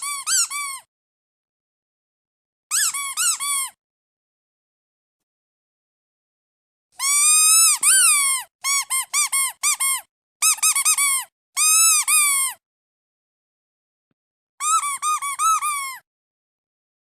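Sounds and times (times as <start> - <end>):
squeaky duck toy squeaking: 0.0 - 0.9, 2.7 - 3.8, 7.0 - 12.6, 14.6 - 16.1.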